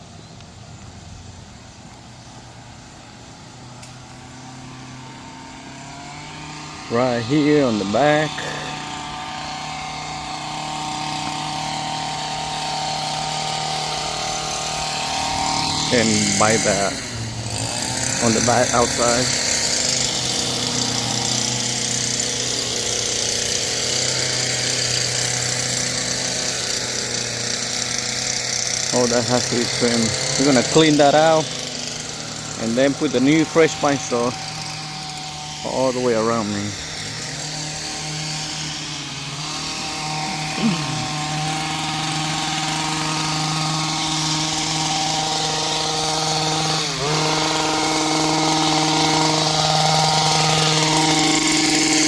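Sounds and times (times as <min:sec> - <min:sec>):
hedge trimmer running: 0:00.0 - 0:52.0.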